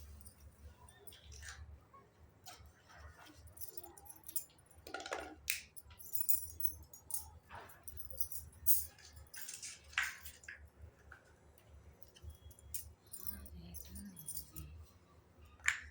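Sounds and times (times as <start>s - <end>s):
toy pieces clicking and clinking: 12.0s - 14.7s.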